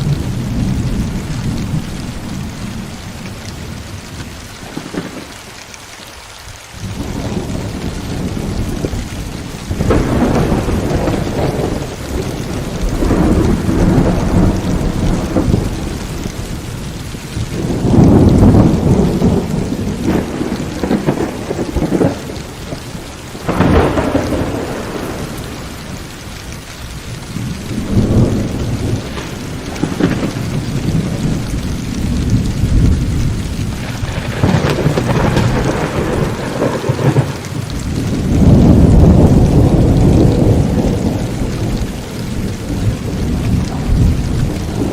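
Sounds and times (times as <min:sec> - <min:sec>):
thunder rumbling: 0:00.0 - 0:05.8, 0:06.7 - 0:44.9
heavy rain falling: 0:00.0 - 0:44.9
sharp thunder crack: 0:09.7 - 0:16.6, 0:17.5 - 0:26.0, 0:27.4 - 0:44.9.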